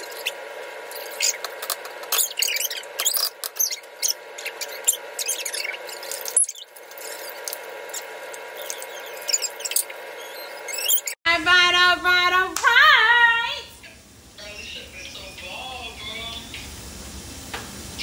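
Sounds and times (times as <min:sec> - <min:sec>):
meat sizzling in hot oil: 0:14.0 - 0:18.0.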